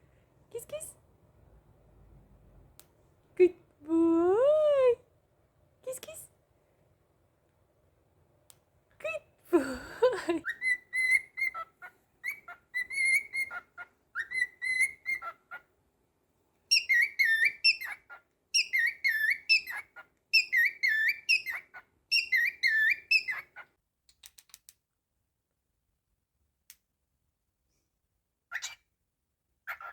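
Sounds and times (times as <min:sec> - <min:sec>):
cockatiel whistling a tune: 0:10.5 - 0:11.6, 0:12.2 - 0:15.3, 0:16.7 - 0:18.0, 0:18.6 - 0:19.8, 0:20.4 - 0:23.4.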